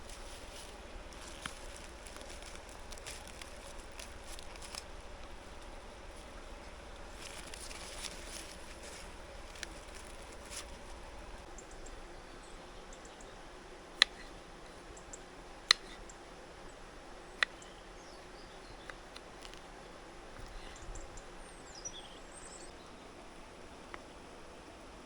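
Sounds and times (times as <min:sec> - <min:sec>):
bird twittering: 0:20.5 - 0:23.0.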